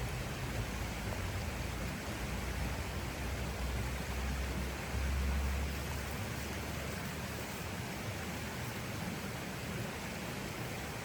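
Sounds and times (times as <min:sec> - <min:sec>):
snowstorm wind rushing hiss: 0:00.0 - 0:11.0.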